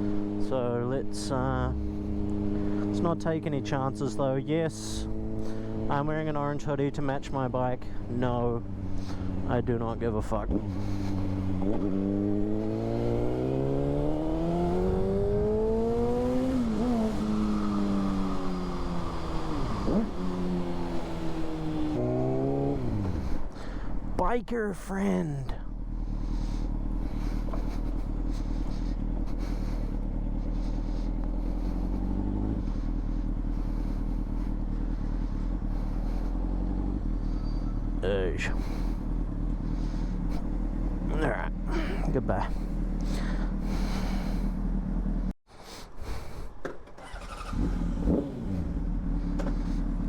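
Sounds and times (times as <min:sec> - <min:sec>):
motorcycle engine accelerating: 0:00.0 - 0:45.4, 0:46.1 - 0:50.0.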